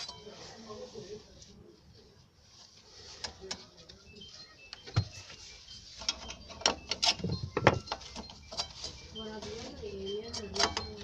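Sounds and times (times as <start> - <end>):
tools clinking on brake parts: 6.0 - 9.5, 10.2 - 11.0.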